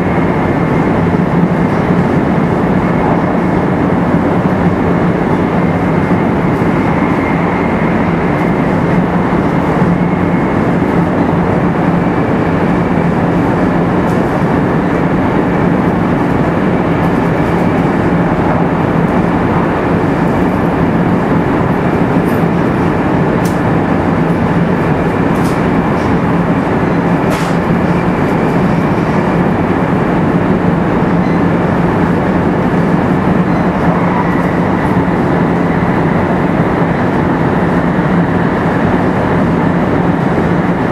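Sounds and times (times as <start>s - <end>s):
train wheel and air rush: 0.0s - 40.9s.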